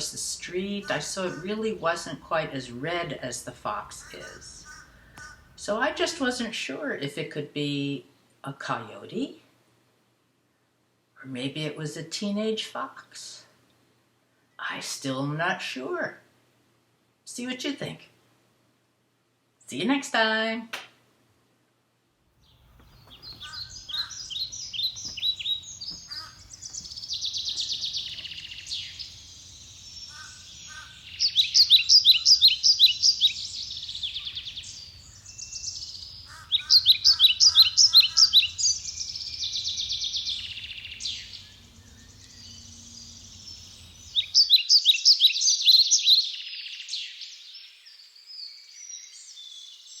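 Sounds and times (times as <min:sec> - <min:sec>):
songbirds trilling: 0:00.0 - 0:06.5, 0:22.4 - 0:50.0.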